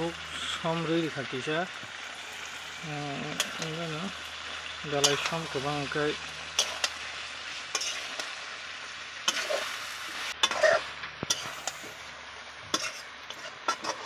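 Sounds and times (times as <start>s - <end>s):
curry frying hiss: 0.0s - 14.0s
spatula scraping a wok: 2.1s - 5.7s, 6.3s - 8.6s, 9.2s - 14.0s.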